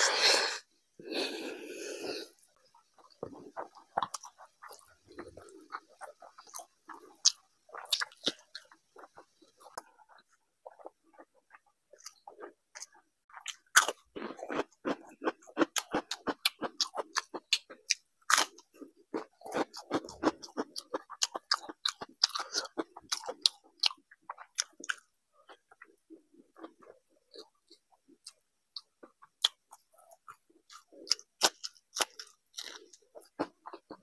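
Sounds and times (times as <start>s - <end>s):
man chewing rice: 0.0s - 34.0s.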